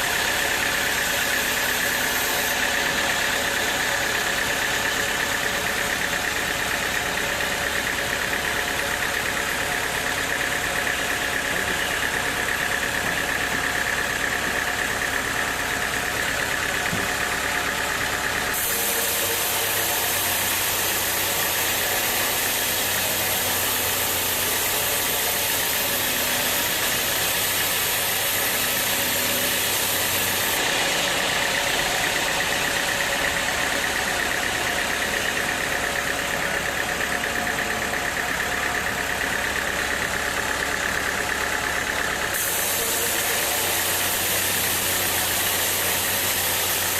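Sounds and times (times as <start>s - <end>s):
sawmill machinery running: 0.0s - 46.9s.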